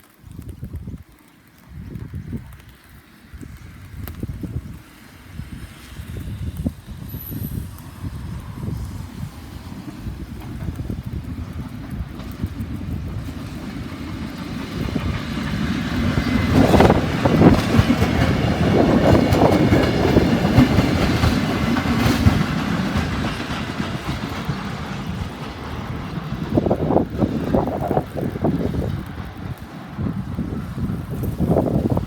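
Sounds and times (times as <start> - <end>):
electric train passing: 4.6 - 32.0
wheels clacking over rail joints: 9.3 - 32.0.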